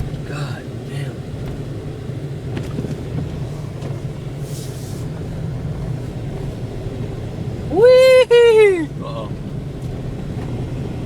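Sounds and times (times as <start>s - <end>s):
engine and tyres rumbling: 0.0s - 11.0s
brief hiss: 4.4s - 5.1s.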